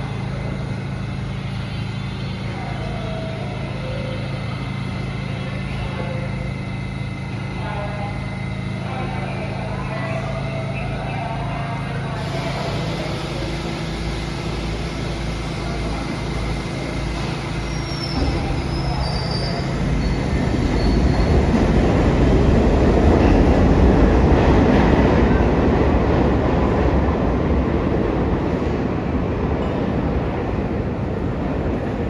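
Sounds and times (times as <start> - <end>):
subway train rumble: 0.0 - 32.0
high wheel squeal: 17.4 - 21.4.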